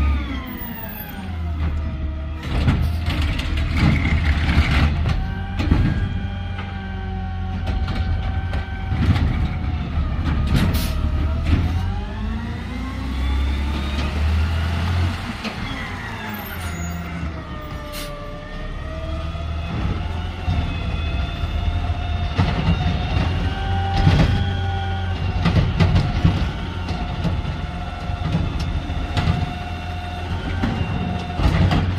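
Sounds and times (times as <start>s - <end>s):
garbage truck engine rumbling: 0.0s - 31.9s
knocks and clanks: 25.2s - 29.6s, 30.5s - 31.9s.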